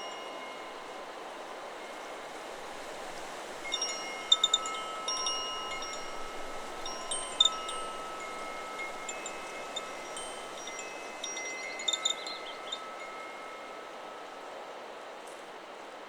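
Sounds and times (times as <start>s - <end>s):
wind chime ringing: 0.0s - 1.1s, 3.6s - 14.4s
wind hiss: 0.0s - 16.0s.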